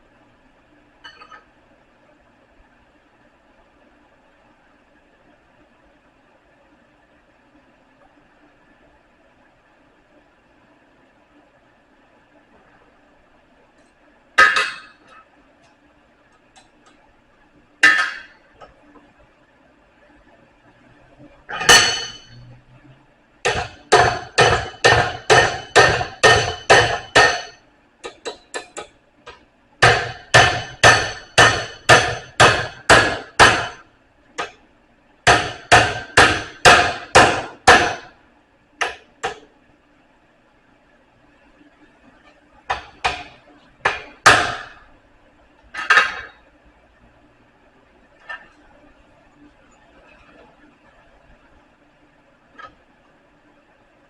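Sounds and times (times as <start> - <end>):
hammer striking steel: 17.8 - 18.4, 21.5 - 22.4, 23.5 - 28.9, 29.8 - 33.8, 35.3 - 38.2, 42.7 - 44.8.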